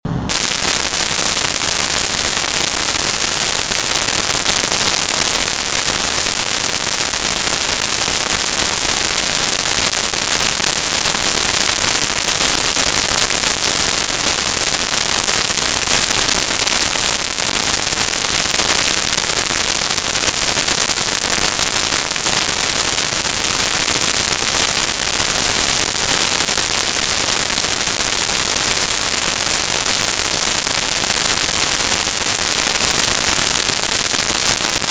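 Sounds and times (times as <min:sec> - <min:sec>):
crackling static hiss: 0:00.1 - 0:34.9.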